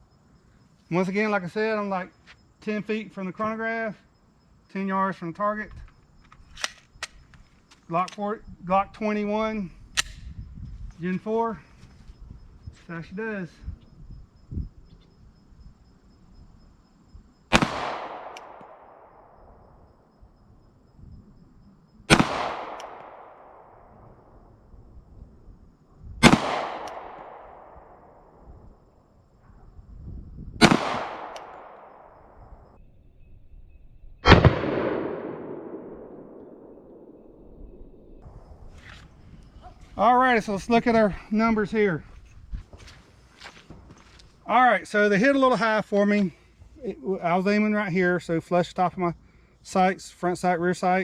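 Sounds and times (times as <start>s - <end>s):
pistol shot echoing: 17.5s - 19.4s, 22.1s - 23.8s, 26.2s - 28.1s, 30.6s - 32.4s, 34.2s - 37.4s.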